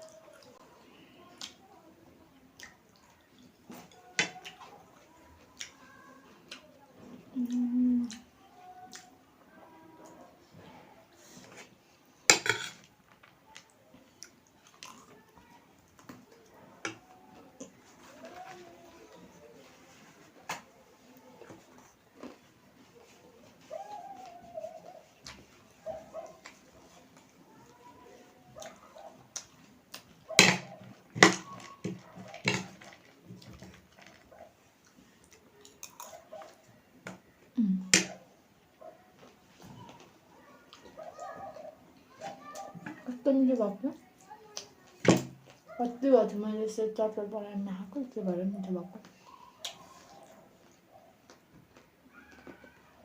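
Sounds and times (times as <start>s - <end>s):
chewing and crunching noodles: 13.5s - 16.6s, 21.4s - 36.8s
chewing crunches: 21.7s - 22.6s, 31.3s - 36.6s.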